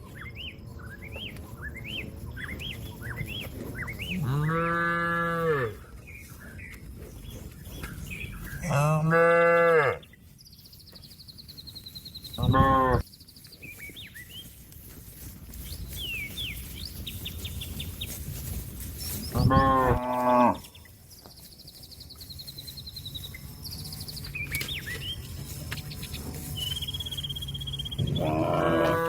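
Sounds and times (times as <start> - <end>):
birds chirping faintly: 0.0 - 29.0
cow mooing loudly: 4.2 - 5.8, 8.6 - 10.0, 19.4 - 20.7, 28.0 - 29.0.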